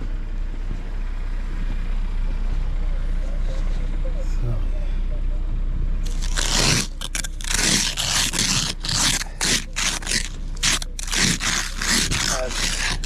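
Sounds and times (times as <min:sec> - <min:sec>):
snow being shoveled: 0:06.0 - 0:13.0.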